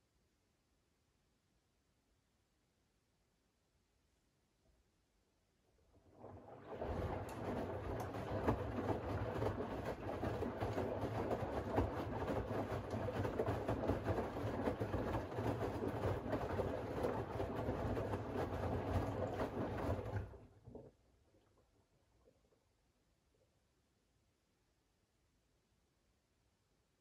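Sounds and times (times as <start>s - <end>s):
washing machine motor hum: 5.9s - 20.9s
laundry and water tumbling: 5.9s - 21.7s.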